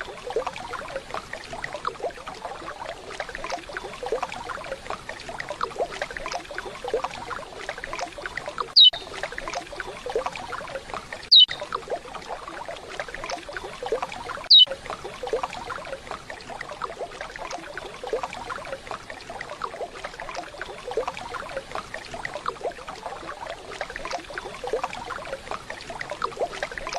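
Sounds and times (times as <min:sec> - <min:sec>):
waterfall: 0:00.0 - 0:26.9
descending whistled bird calls: 0:08.8 - 0:09.1, 0:11.3 - 0:11.6.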